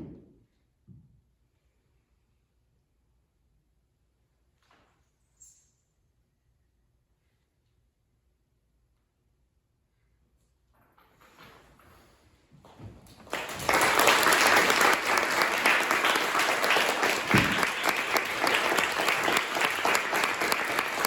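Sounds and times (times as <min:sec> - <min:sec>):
audience applause: 0:13.2 - 0:21.0.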